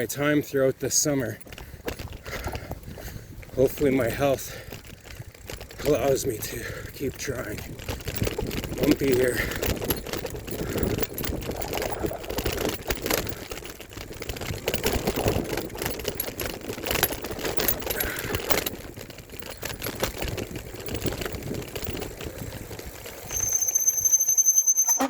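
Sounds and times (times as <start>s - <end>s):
bike and phone holder rattling: 0.0s - 25.0s
tyre noise: 0.0s - 25.0s
wind noise: 1.4s - 23.5s
high-pitched squeal: 23.3s - 25.0s.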